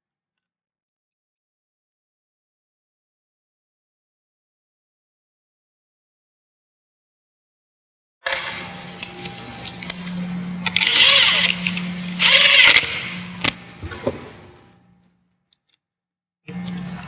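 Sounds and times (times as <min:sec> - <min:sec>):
short loud bursts of noise: 0:10.8 - 0:13.3.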